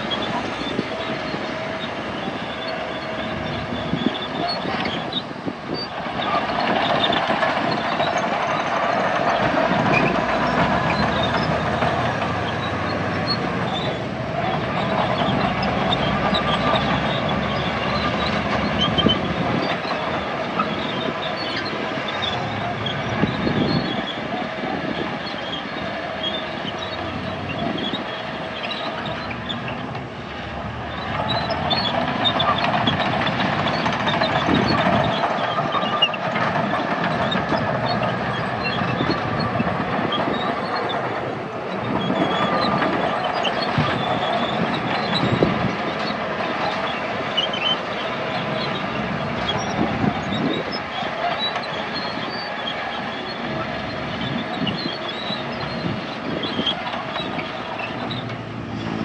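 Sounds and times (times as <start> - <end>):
bulldozer diesel engine: 0.0 - 59.0.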